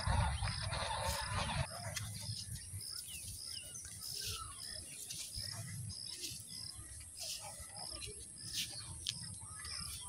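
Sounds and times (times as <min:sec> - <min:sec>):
low rumble: 0:00.0 - 0:01.8
small birds chirping: 0:00.0 - 0:10.0.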